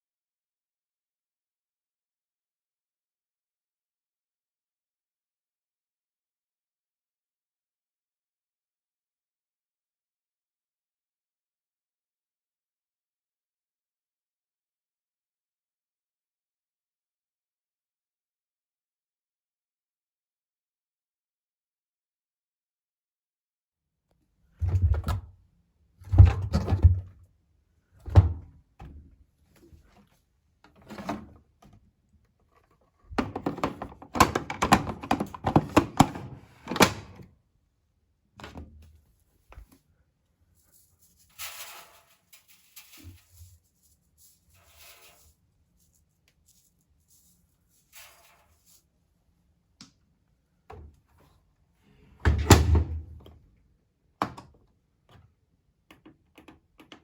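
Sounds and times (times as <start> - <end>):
washing machine parts knocking: 33.2 - 36.8.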